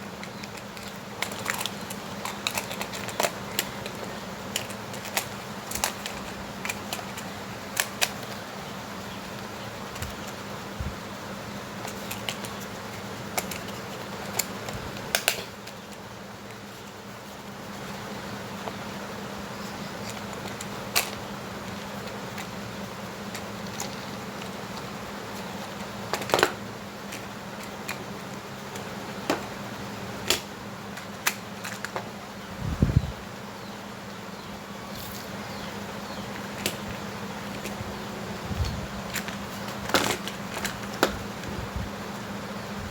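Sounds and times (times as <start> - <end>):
steady low hum: 0.0 - 42.9
tools and parts clicking: 0.2 - 8.4.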